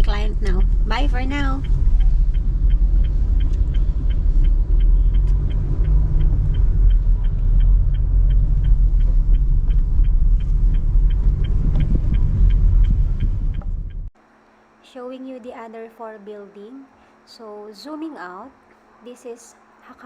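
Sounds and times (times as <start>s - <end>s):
light high ticking: 0.0s - 14.1s
road vehicle rumble: 0.0s - 14.1s.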